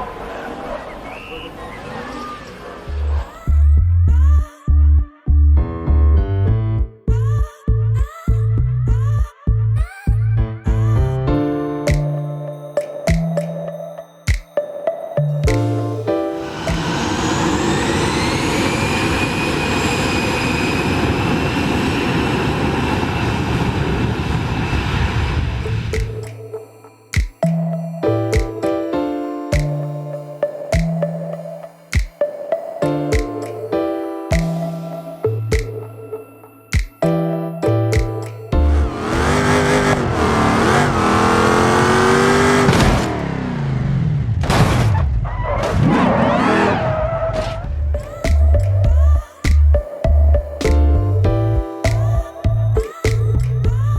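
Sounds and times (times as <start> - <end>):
jet engine rushing and whining: 16.4 - 26.1
race car engine: 38.7 - 47.9.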